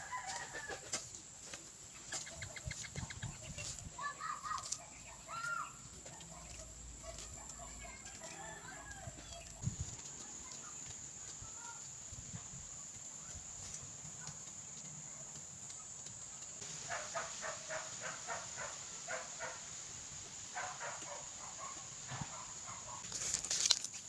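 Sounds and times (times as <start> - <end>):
chicken clucking: 1.9 - 9.5.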